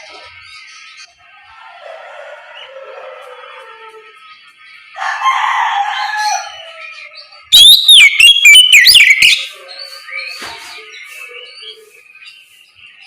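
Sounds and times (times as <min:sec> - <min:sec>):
bird whistled song: 0:06.6 - 0:13.0
harsh rasping bird call: 0:07.5 - 0:12.5.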